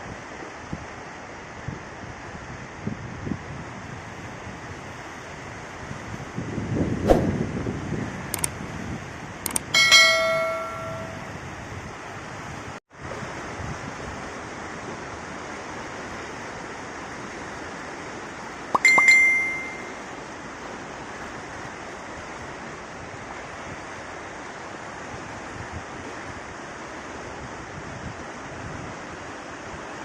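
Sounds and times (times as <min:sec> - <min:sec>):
bell ringing: 0:09.5 - 0:11.4, 0:18.8 - 0:20.0.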